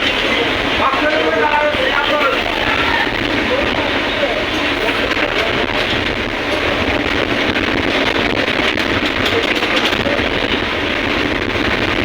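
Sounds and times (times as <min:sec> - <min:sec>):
heavy sea: 0:00.0 - 0:12.0.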